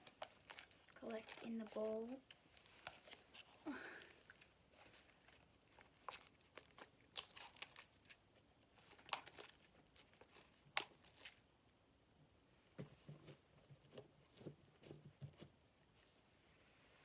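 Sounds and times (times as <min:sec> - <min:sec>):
sticky slime clicks and crackles: 0:08.8 - 0:11.4.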